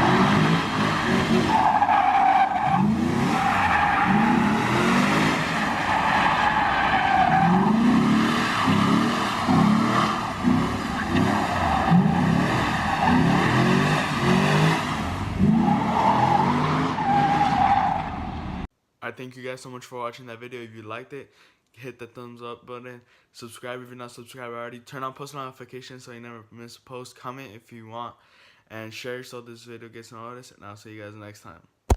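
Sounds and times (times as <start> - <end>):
tires squealing and skidding: 0.0 - 18.6
car engine revving: 0.0 - 18.7.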